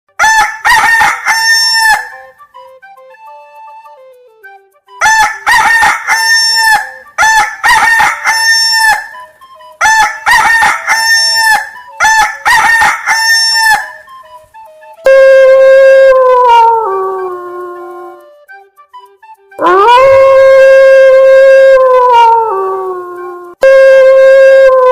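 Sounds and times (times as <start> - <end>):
rooster crowing: 0.2 - 2.2, 5.0 - 9.2, 9.8 - 14.0, 15.1 - 17.8, 19.6 - 23.2.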